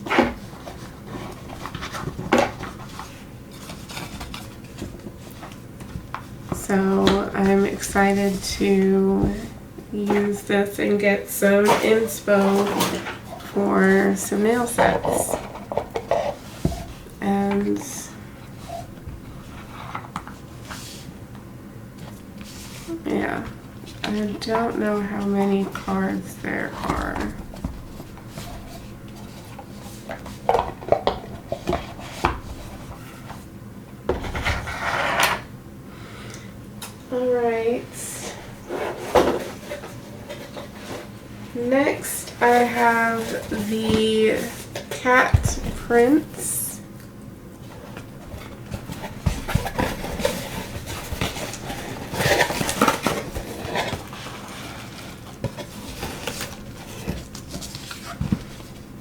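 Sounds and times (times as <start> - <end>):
wrapping rustling: 47.6 - 59.0.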